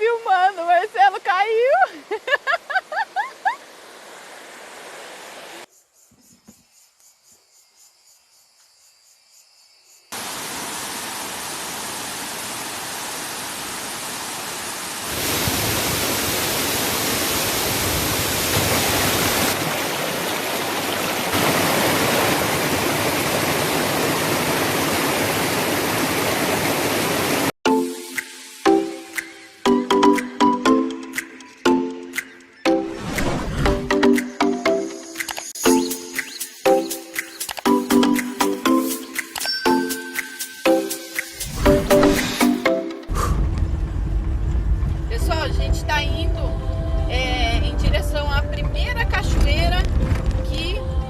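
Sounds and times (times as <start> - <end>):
waterfall crashing: 10.2 - 27.5, 41.2 - 42.8.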